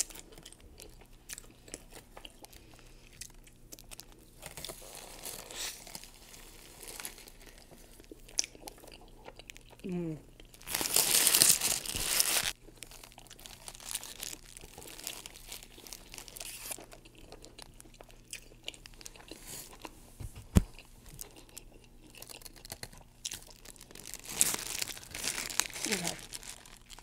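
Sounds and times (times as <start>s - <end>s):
chewing and mouth sounds: 0.0s - 10.7s, 12.5s - 20.0s, 20.6s - 24.6s
small crackles: 10.5s - 17.9s, 20.2s - 27.0s.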